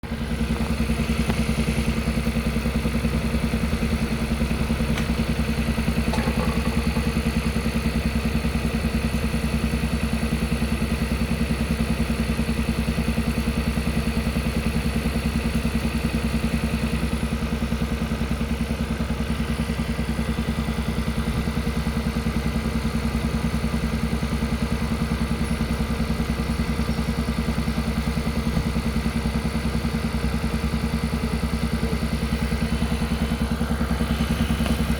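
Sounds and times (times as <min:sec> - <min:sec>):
car engine thudding: 0:00.0 - 0:11.4, 0:16.6 - 0:34.9.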